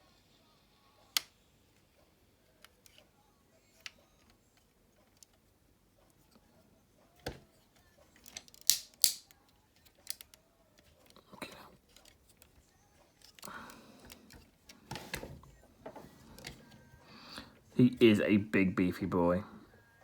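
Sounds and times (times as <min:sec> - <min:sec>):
plastic toy parts clicking: 0:08.1 - 0:11.2, 0:11.8 - 0:14.8.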